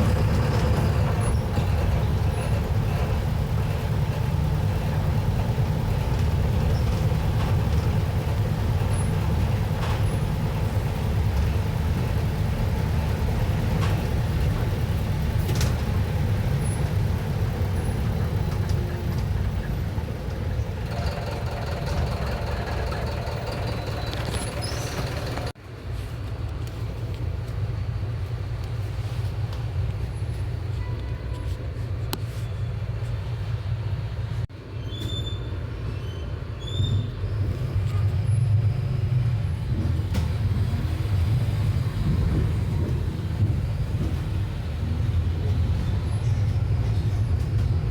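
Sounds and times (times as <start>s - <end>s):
diesel engine droning: 0.0s - 25.6s.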